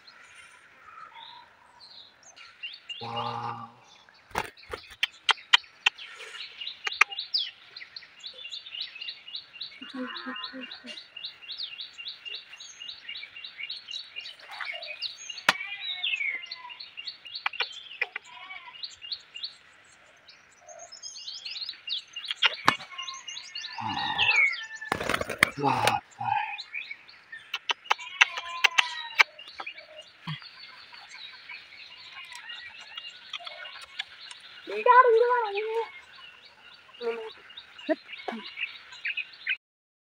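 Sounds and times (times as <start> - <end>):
sharp clicks: 4.3 - 6.0
small bird chirping: 4.3 - 39.6.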